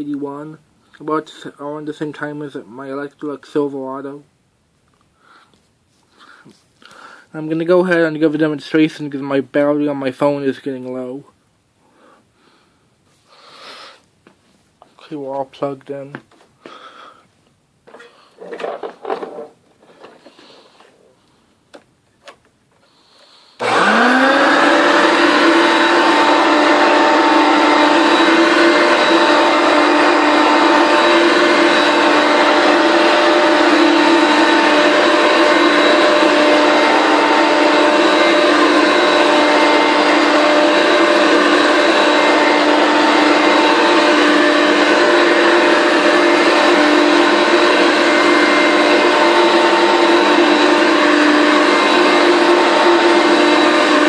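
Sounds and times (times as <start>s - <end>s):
vacuum cleaner motor whining: 23.6s - 54.0s.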